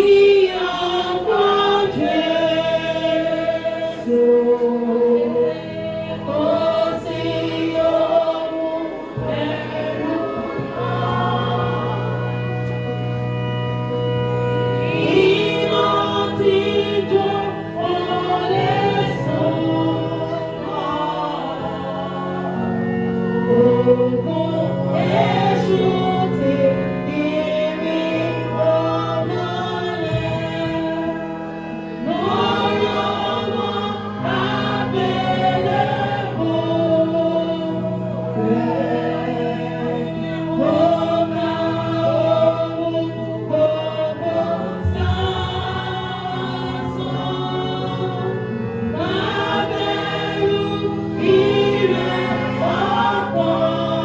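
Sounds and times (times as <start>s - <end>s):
choir singing a hymn: 0.0s - 54.0s
sustained accompanying chords: 0.0s - 54.0s.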